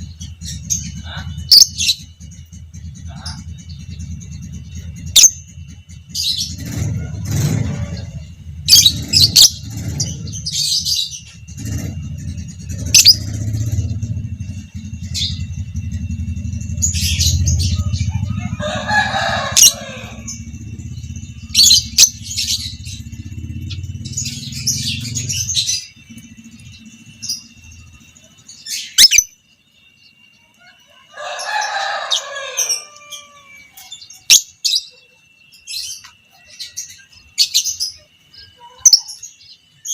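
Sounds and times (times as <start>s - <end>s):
low rumble: 0.0s - 29.0s
chattering trills: 0.0s - 30.8s
lovebird chirping: 0.0s - 31.0s, 31.6s - 39.9s.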